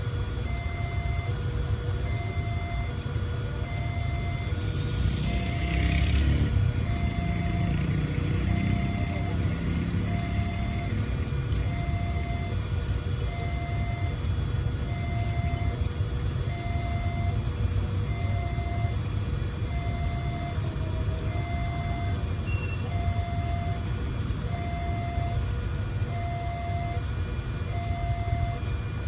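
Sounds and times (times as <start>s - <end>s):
vehicle engines idling rumble: 0.0s - 29.0s
level crossing alarm two tones: 2.1s - 2.9s.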